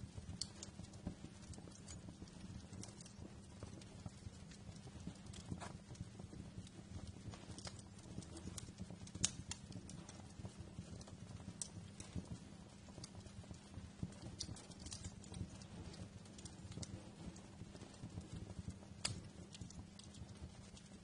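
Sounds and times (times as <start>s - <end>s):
low rumble of burning: 0.0s - 21.0s
wood fire crackling and popping: 0.0s - 21.0s.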